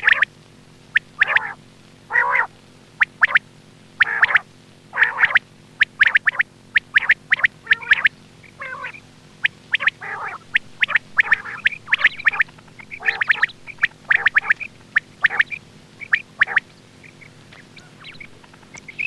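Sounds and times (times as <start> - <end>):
quail chirping: 0.0 - 0.3, 0.9 - 3.4, 4.0 - 19.0
low steady hum: 0.0 - 19.0.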